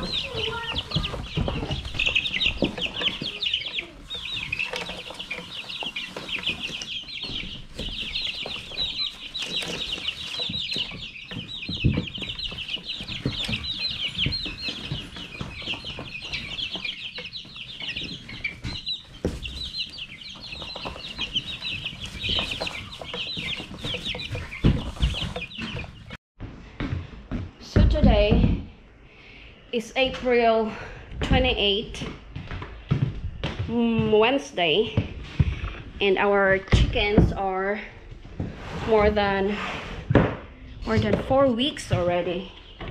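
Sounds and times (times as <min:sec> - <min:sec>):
chicks peeping: 0:00.0 - 0:26.2, 0:39.2 - 0:42.9.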